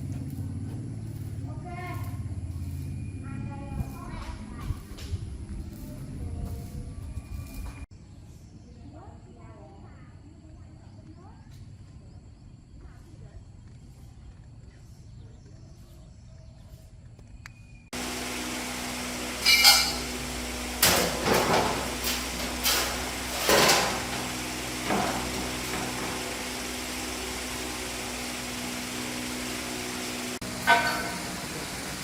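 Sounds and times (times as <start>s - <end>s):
steady machine hum: 17.9s - 32.0s
hand tools clanking on metal: 19.3s - 28.3s, 30.4s - 32.0s.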